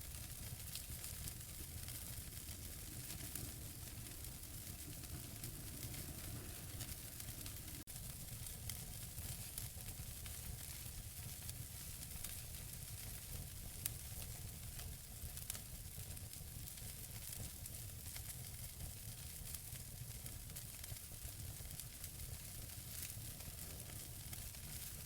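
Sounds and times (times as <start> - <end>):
fire popping: 0.0 - 25.0
wood fire crackling: 0.0 - 25.0
low rumble: 3.0 - 7.8.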